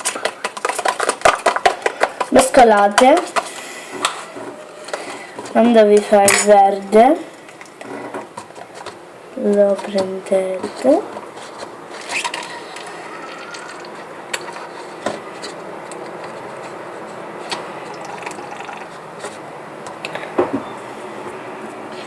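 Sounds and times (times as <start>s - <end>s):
clicks against container sides: 0.0s - 6.7s.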